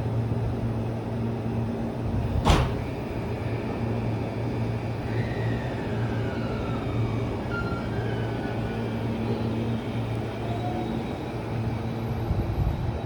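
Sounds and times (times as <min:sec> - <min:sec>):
electric train humming: 0:00.3 - 0:13.0
sharp clank: 0:02.4 - 0:03.0.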